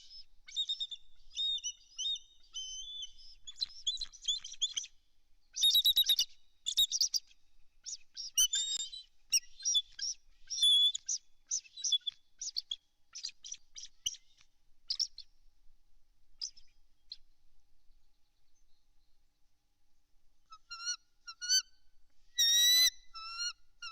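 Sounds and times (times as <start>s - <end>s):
eagle chirping calls: 0.0s - 5.0s, 22.4s - 23.9s.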